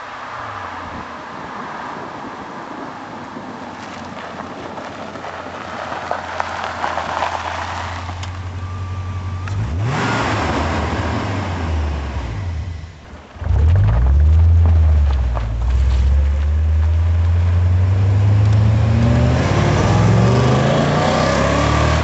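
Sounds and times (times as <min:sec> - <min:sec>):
car engine revving: 0:09.0 - 0:22.0.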